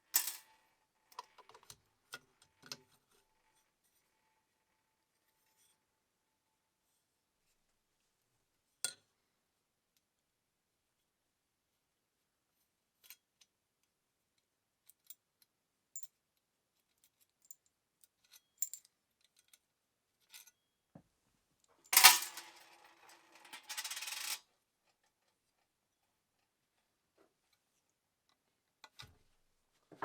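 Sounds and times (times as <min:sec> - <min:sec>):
small metal clicks and clinks: 0:14.8 - 0:15.2, 0:16.0 - 0:16.2, 0:16.9 - 0:19.6.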